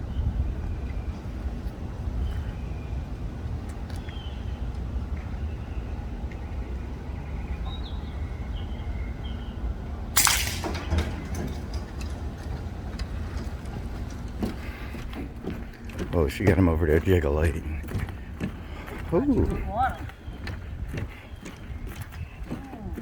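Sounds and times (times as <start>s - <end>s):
air rifle shot: 10.2s - 11.6s.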